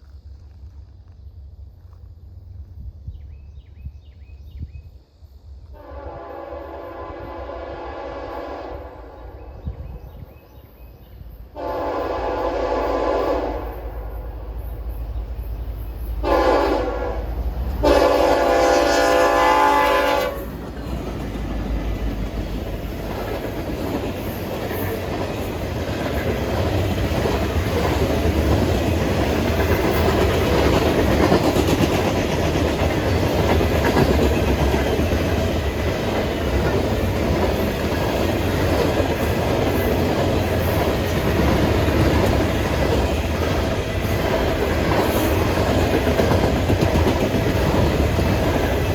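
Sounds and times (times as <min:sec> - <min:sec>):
locomotive air horn: 0:05.7 - 0:09.2, 0:11.6 - 0:13.9, 0:16.2 - 0:20.5
train wheels clattering on rails: 0:17.6 - 0:48.9.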